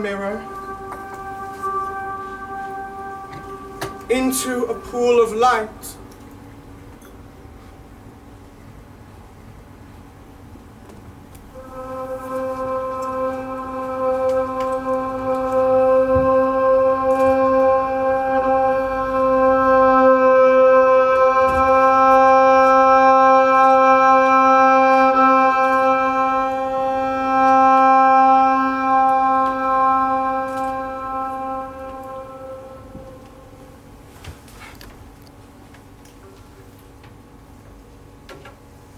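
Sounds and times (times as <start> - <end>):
sustained musical drone note: 0.0 - 6.6, 11.5 - 34.3.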